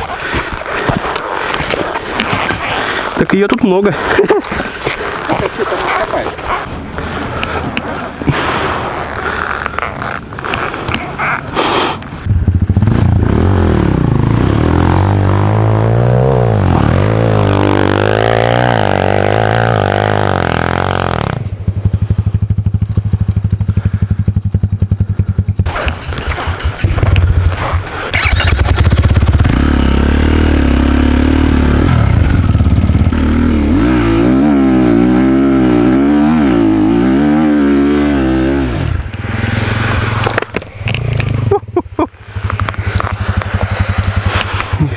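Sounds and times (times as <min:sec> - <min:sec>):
dirt bike engine revving: 0:12.2 - 0:44.9.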